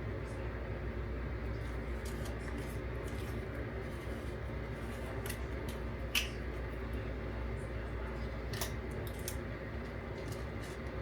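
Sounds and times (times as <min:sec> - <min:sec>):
low hum and hiss: 0:00.0 - 0:11.0.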